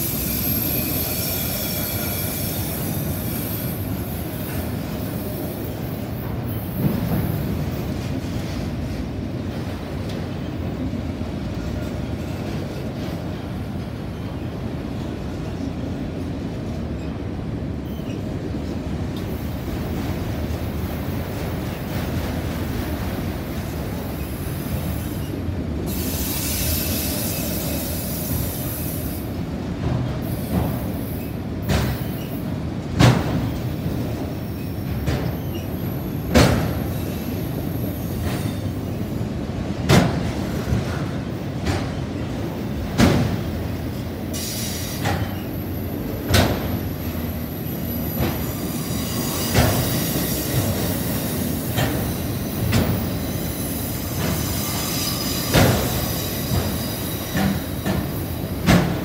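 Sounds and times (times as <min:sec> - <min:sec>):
faint high wheel squeal: 0:00.0 - 0:04.0, 0:17.8 - 0:18.3, 0:25.0 - 0:29.2, 0:34.4 - 0:36.0, 0:47.6 - 0:57.8
train wheels rumbling on rail: 0:00.0 - 0:59.0.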